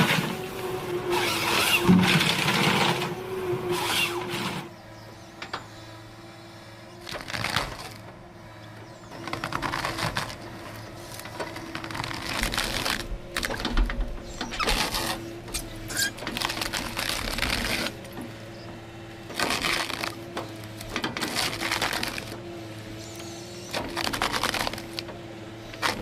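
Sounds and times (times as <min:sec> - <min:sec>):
heavy machine engine running: 0:00.0 - 0:26.0
cracking and crunching: 0:07.0 - 0:08.2, 0:09.2 - 0:22.5, 0:23.7 - 0:26.0.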